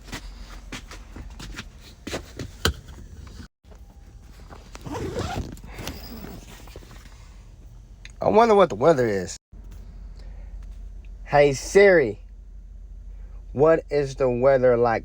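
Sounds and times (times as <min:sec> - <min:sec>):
rustling and scraping of bedding: 0:00.0 - 0:07.8
zipper-like rasp: 0:04.8 - 0:06.9.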